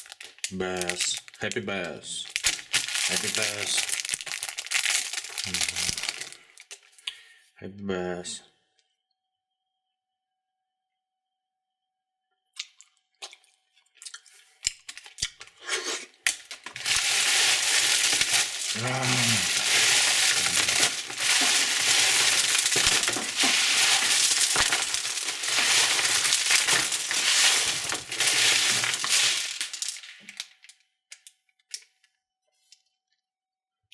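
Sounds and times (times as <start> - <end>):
wrapper crinkling and tearing: 0.0 - 1.5, 2.2 - 7.0, 14.6 - 31.9.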